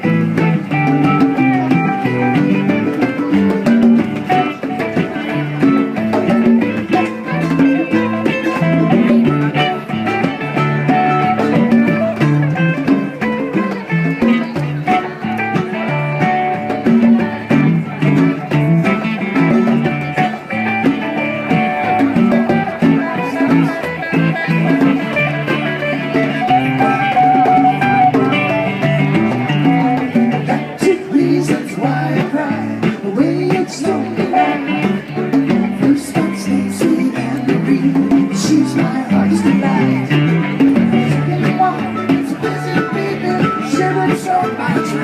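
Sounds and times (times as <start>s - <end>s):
conga drums: 0.0s - 45.0s
guitar: 0.0s - 45.0s
mandolin: 0.0s - 45.0s.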